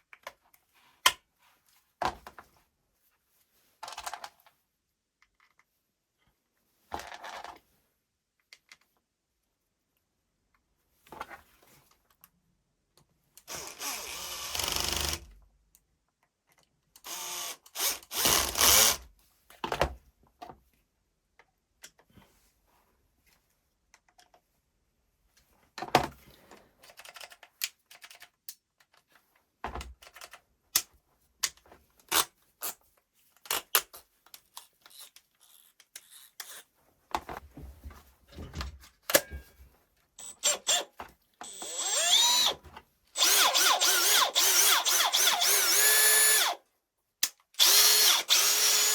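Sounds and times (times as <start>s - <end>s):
cordless drill motor running: 13.5s - 15.2s, 17.0s - 19.0s, 40.2s - 42.6s, 43.2s - 46.6s, 47.6s - 48.9s
clicks and knocks of tool handling: 38.3s - 39.7s.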